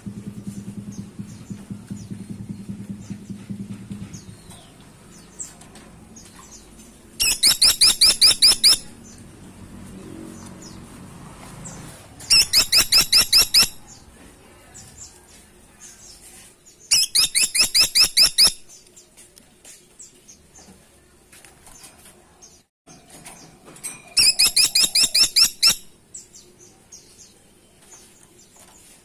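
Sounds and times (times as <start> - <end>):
woodpecker rattling call: 7.2 - 9.0, 12.2 - 13.9, 16.9 - 18.7, 24.2 - 25.9.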